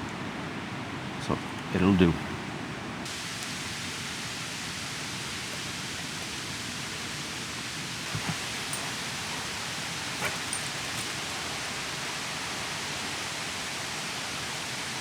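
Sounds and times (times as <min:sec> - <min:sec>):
rain hissing: 0:03.1 - 0:15.0.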